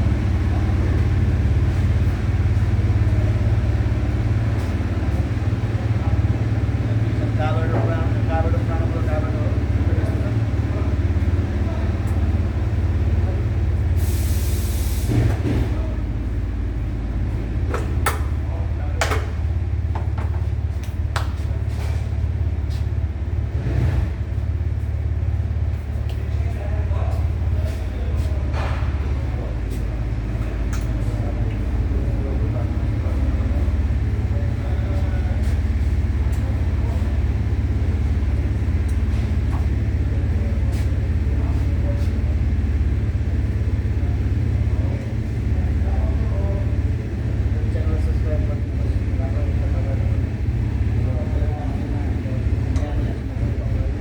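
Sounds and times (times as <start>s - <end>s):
pulsing low machine rumble: 0.0s - 54.0s
spraying hiss: 14.0s - 15.2s
click: 30.7s - 30.9s.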